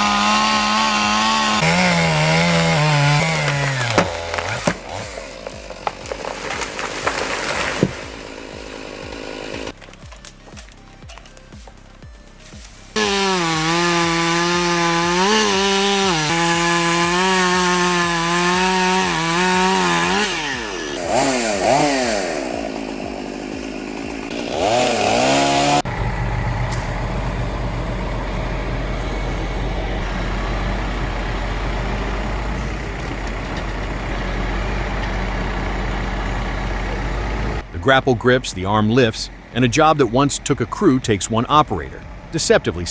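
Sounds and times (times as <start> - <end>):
chainsaw running: 0.0 - 37.7
low humming noise: 25.9 - 35.6.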